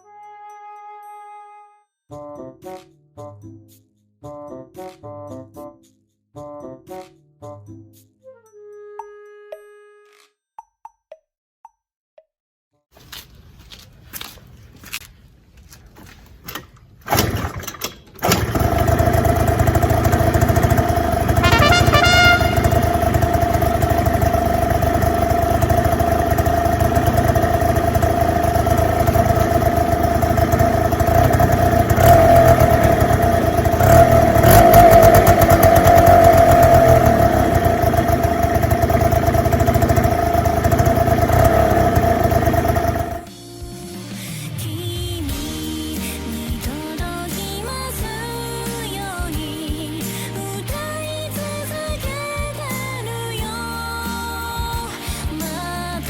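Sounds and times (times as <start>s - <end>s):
scooter engine cranking: 16.6s - 43.3s
scooter engine running: 17.1s - 43.3s.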